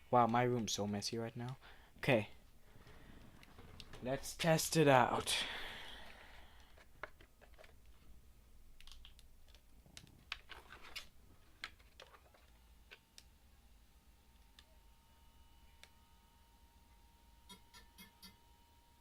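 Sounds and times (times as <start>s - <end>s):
faint high tone hum: 12.4s - 19.0s.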